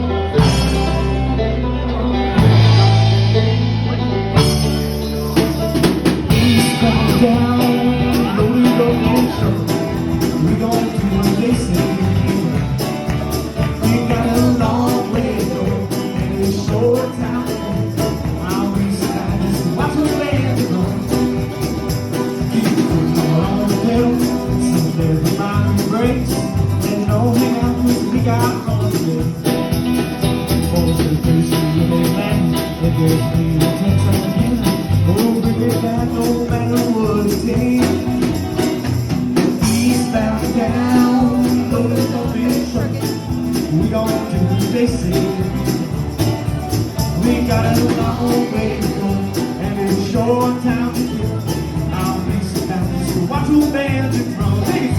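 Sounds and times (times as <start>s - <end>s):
live band playing country music: 0.0s - 54.9s.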